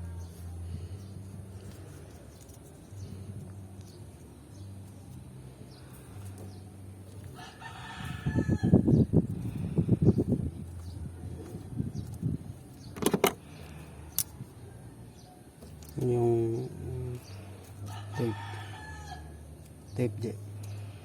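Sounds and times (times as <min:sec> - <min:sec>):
rooster crowing: 0:07.4 - 0:08.8, 0:17.9 - 0:19.4.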